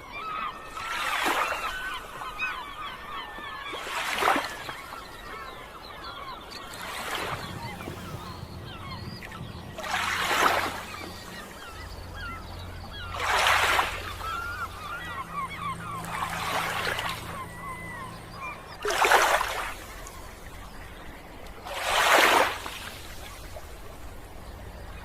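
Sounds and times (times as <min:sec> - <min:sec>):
birds chirping and calling: 0:00.0 - 0:23.6
sea waves washing onto shore: 0:06.1 - 0:17.7.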